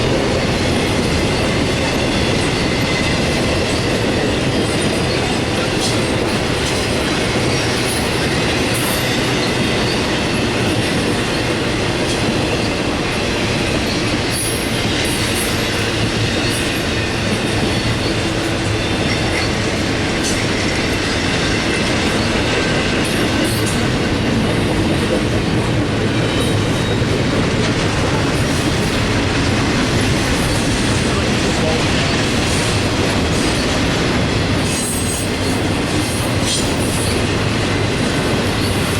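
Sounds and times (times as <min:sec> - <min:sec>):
freight train rolling past: 0:00.0 - 0:38.9
wheels clacking over rail joints: 0:00.0 - 0:38.9.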